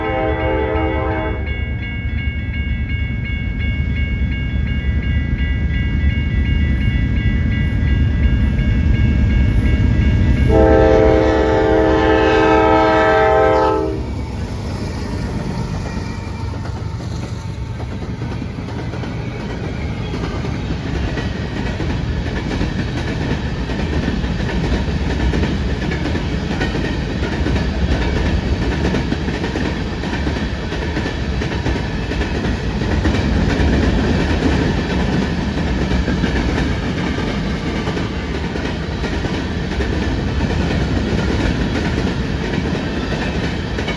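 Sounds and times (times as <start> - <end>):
train horn blast: 0.0 - 1.6, 10.4 - 14.2
diesel locomotive rumbling: 0.0 - 43.9
train cars clattering on rails: 14.6 - 43.9.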